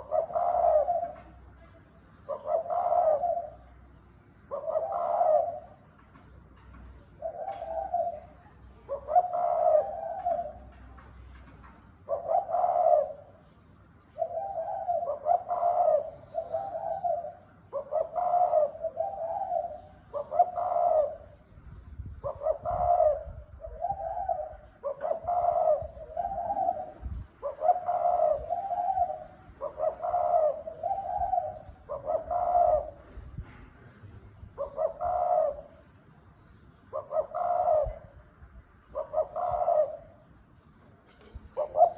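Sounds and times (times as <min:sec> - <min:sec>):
dove cooing: 0:00.0 - 0:03.8, 0:04.4 - 0:13.5, 0:14.2 - 0:36.0, 0:36.9 - 0:41.9.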